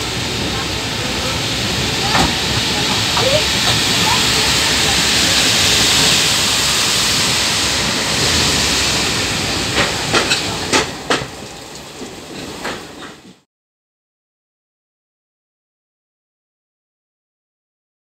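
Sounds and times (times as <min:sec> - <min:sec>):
wind and rain: 0:00.0 - 0:13.3
moving train rushing noise: 0:00.0 - 0:13.4.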